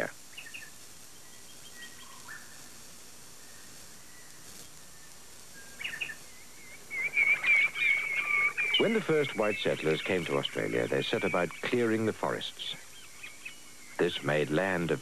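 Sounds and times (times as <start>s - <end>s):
low steady hiss: 0.0s - 15.0s
faint high bird chirps: 0.3s - 2.6s, 3.4s - 14.8s
bird warbling: 5.6s - 14.2s.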